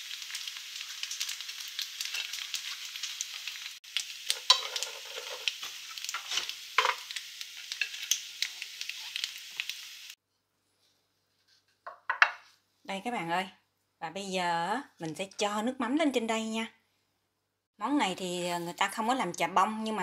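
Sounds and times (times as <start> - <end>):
rice crackers sizzling in oil: 0.0 - 10.2
crackers knocking on pan: 4.3 - 5.5, 6.1 - 7.1.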